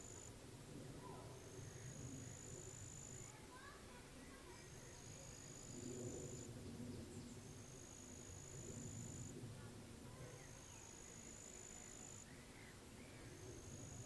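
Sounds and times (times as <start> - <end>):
low steady background rumble: 0.0 - 14.0.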